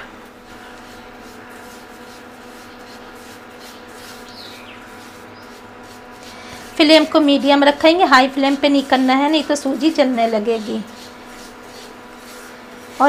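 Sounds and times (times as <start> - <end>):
semolina sizzling in oil: 0.0 - 13.0
steady hum: 0.0 - 13.0
spatula stirring: 0.2 - 13.0.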